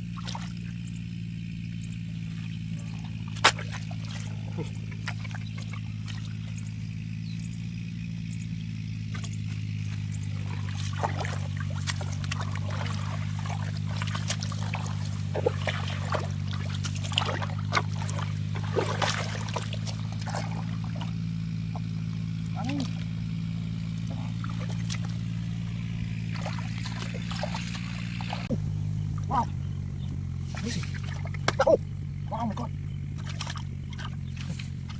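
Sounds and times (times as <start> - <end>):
splashing in shallow water: 0.0 - 34.9
steady low drone: 0.0 - 34.9
short sharp splashes and clicks: 0.1 - 0.8, 2.9 - 6.8, 9.1 - 22.0, 23.9 - 28.6, 30.4 - 31.8, 32.5 - 34.9.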